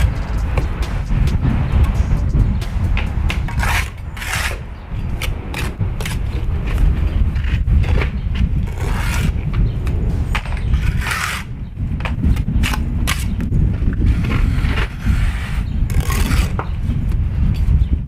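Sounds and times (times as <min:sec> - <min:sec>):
low rumble: 0:00.0 - 0:18.0
trowel scraping mortar: 0:03.4 - 0:09.6, 0:10.3 - 0:11.5, 0:12.6 - 0:16.8.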